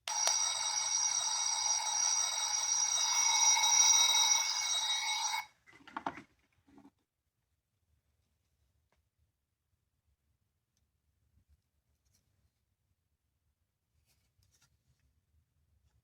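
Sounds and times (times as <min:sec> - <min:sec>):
electric bell ring from speaker: 0:00.0 - 0:05.5.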